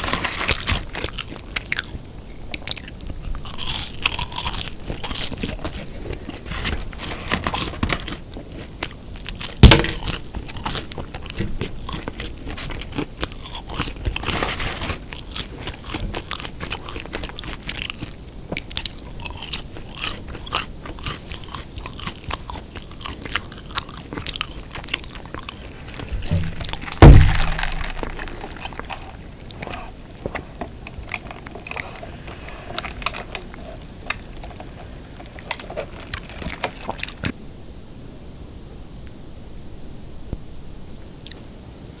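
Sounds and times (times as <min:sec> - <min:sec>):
chewing and biting burger: 0:00.0 - 0:02.0, 0:02.6 - 0:37.3
heavy thumps: 0:25.9 - 0:29.2.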